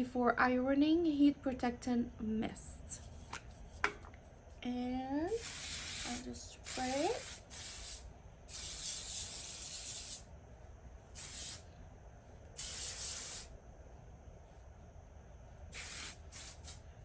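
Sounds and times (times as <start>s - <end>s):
pump spray bottle spritzing: 15.8s - 16.8s.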